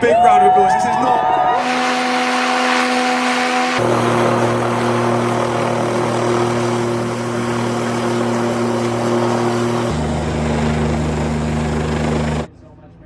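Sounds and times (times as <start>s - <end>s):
helicopter rotor and engine: 2.8s - 12.5s.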